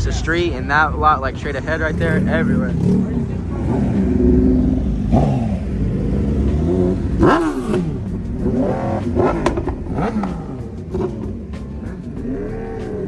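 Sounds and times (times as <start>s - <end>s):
car engine revving: 0.0s - 13.0s
engines running low: 0.0s - 13.0s
sharp pops: 6.5s - 11.8s.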